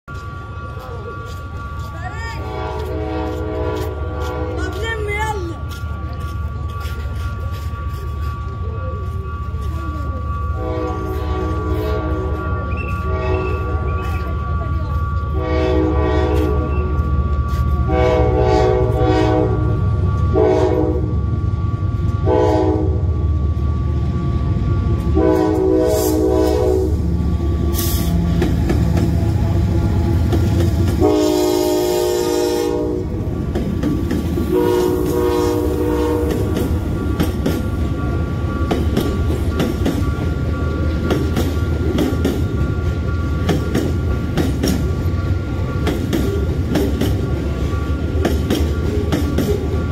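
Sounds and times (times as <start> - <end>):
locomotive air horn blasts: 2.4 - 4.6, 10.6 - 12.4, 13.0 - 13.7, 15.4 - 16.7, 17.9 - 21.1, 22.2 - 23.1, 25.2 - 27.0, 30.9 - 33.2, 34.5 - 36.6.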